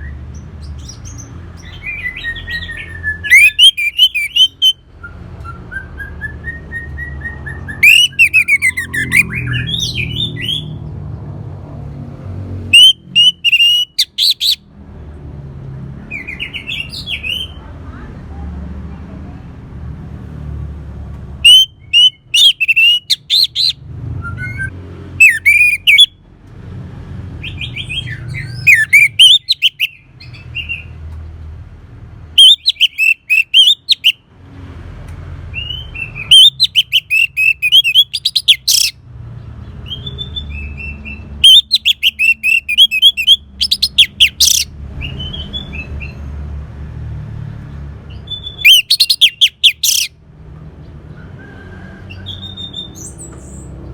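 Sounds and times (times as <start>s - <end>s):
thrush singing warbling phrases: 12.7s - 14.6s, 21.4s - 23.8s, 24.4s - 26.1s.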